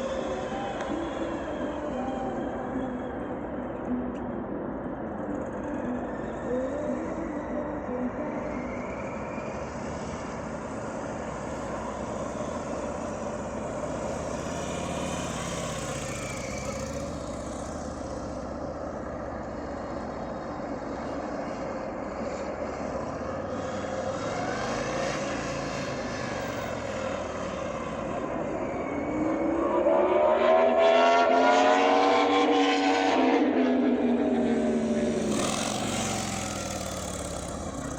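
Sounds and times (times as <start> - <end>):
wind and road noise: 0.0 - 37.9
motorcycle engine running: 34.7 - 37.9.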